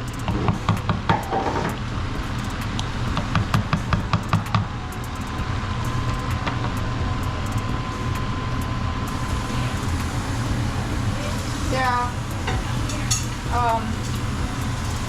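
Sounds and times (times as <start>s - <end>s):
steady low hum: 1.7s - 15.0s
pot simmering: 9.1s - 15.0s.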